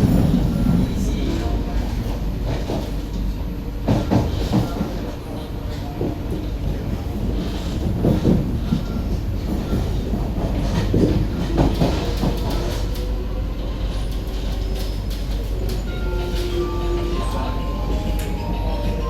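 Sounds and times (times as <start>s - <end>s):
train wheels rumbling on rail: 0.0s - 19.0s
clacks over track joints: 7.4s - 13.1s.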